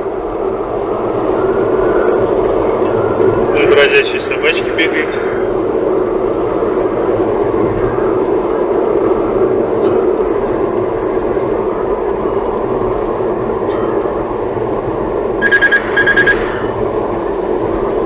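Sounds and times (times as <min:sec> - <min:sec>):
road and wind noise in car: 0:00.0 - 0:18.0
short electronic beeps: 0:15.4 - 0:16.9.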